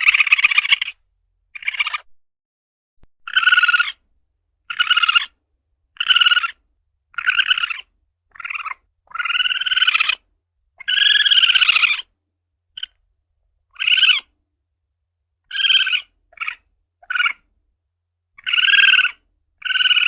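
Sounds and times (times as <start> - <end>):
civet calling: 0.0 - 1.0, 1.6 - 2.1, 3.2 - 4.0, 4.6 - 5.4, 6.0 - 12.1, 12.7 - 13.0, 13.7 - 14.3, 15.4 - 17.5, 18.4 - 20.0.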